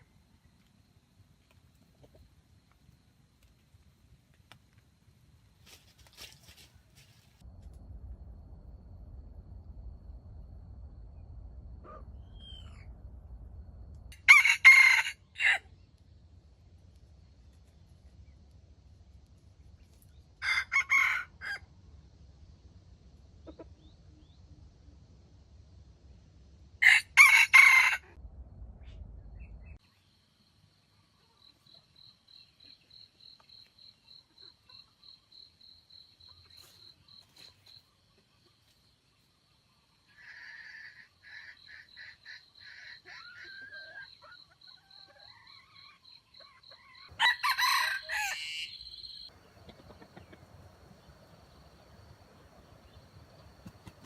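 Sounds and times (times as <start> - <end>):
faint high-pitched chirp: 11.9 - 13.0
rooster crowing: 14.1 - 15.7, 20.4 - 21.7, 26.8 - 28.2, 47.1 - 49.3.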